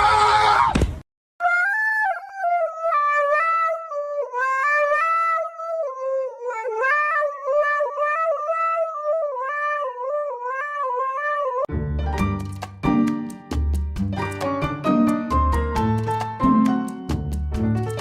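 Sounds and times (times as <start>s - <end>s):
pet howling: 5.9s - 11.7s.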